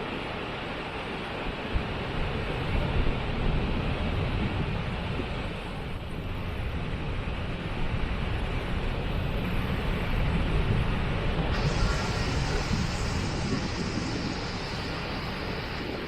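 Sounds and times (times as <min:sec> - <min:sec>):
waterfall rushing: 0:11.5 - 0:16.0.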